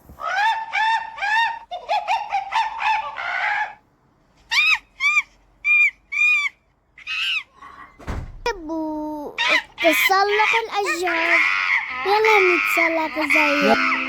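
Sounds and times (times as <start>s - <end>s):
monkey hooting: 0.2s - 3.8s, 9.4s - 14.0s.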